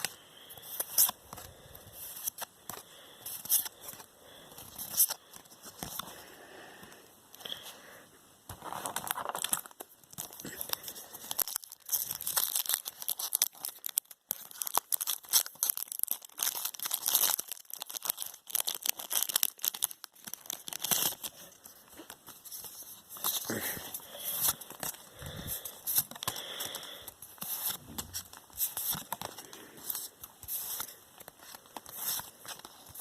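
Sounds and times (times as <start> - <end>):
packaging tearing and crinkling: 8.6 - 21.5.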